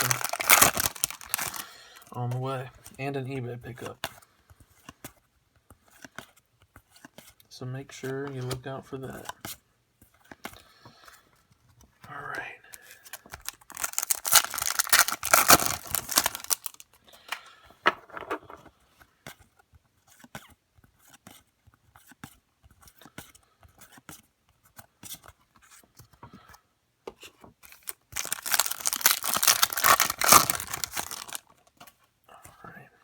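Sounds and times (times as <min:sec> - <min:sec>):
wrapper tearing: 0:00.0 - 0:01.8, 0:13.4 - 0:16.8, 0:27.6 - 0:31.4
cards being handled: 0:00.0 - 0:03.0, 0:03.7 - 0:07.4, 0:08.0 - 0:12.0, 0:12.8 - 0:26.2, 0:27.1 - 0:32.6.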